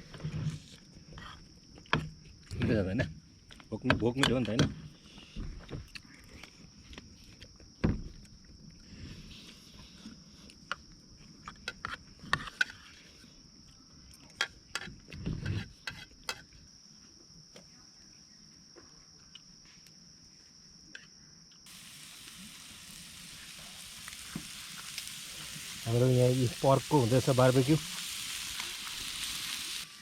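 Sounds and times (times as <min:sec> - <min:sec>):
high insect trill: 0:00.0 - 0:30.0
meat sizzling over campfire: 0:21.6 - 0:30.0.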